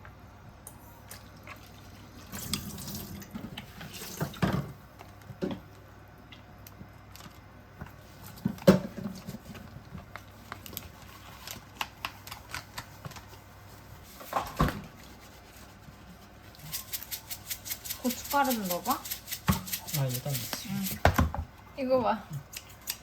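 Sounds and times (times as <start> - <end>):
kitchen tap running: 2.2 - 4.7.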